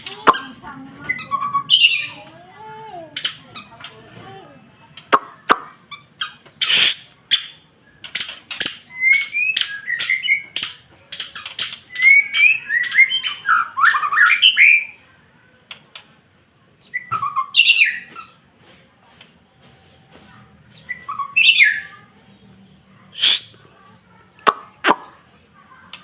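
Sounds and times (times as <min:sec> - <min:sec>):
songbird singing warbled phrases: 0:00.0 - 0:02.3, 0:03.1 - 0:04.0, 0:04.9 - 0:15.0, 0:16.7 - 0:18.4, 0:20.7 - 0:22.3, 0:23.1 - 0:23.6.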